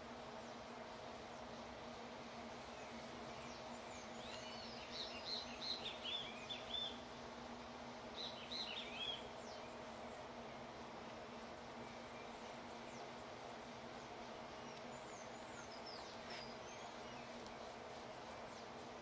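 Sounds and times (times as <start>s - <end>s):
steady low hum: 0.0s - 19.0s
bird chirping: 2.6s - 7.0s, 8.2s - 13.3s, 13.9s - 18.8s.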